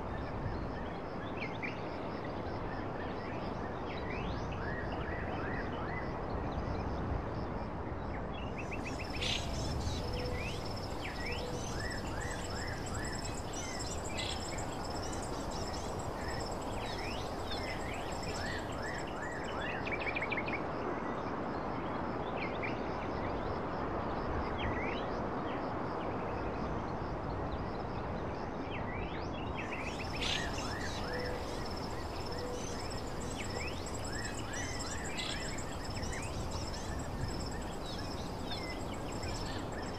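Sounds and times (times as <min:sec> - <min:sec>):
bird chirps: 0:08.7 - 0:19.8, 0:29.7 - 0:39.9
rushing background noise: 0:08.7 - 0:19.8, 0:29.7 - 0:39.9
high insect-like drone: 0:08.8 - 0:19.6, 0:29.8 - 0:39.9.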